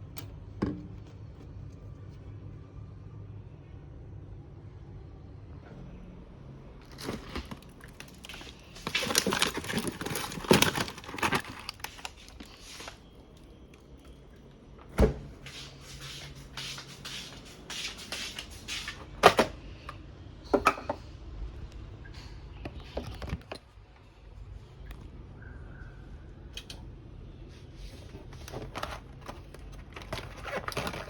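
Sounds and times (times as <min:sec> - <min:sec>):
rustling and clicking of objects: 0:06.8 - 0:14.2, 0:22.1 - 0:24.0, 0:27.9 - 0:31.0.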